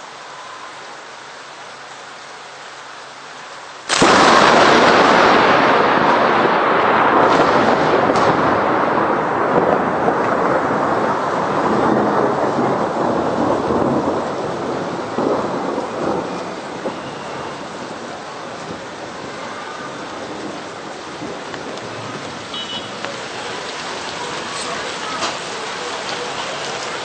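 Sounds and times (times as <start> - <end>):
steady rain: 0.0 - 27.0
sharp thunder cracks: 3.9 - 19.4
thunder rumbling: 3.9 - 27.0.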